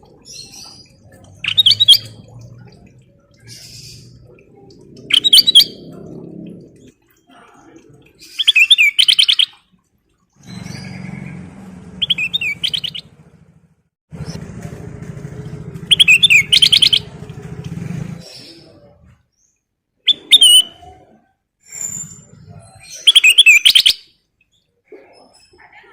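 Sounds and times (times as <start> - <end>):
low steady engine-like hum: 0.0 - 7.0, 10.4 - 19.2
bulbul singing sharp whistled notes: 15.9 - 17.1.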